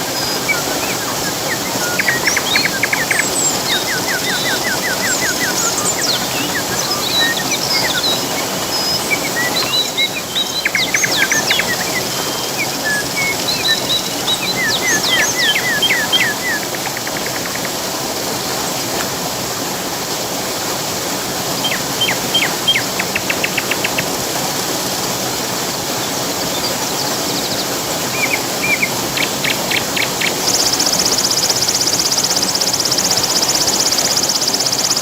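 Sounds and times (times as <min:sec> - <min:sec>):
songbirds chirping and singing: 0:00.0 - 0:17.9, 0:21.5 - 0:24.1
flowing water rushing: 0:00.0 - 0:35.0.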